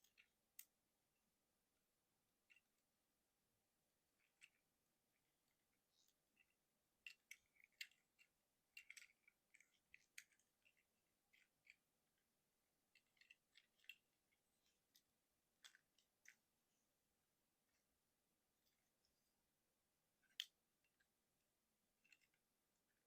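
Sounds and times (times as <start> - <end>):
plastic toy clicks and clacks: 6.4 - 11.8, 12.9 - 14.1, 14.7 - 16.4.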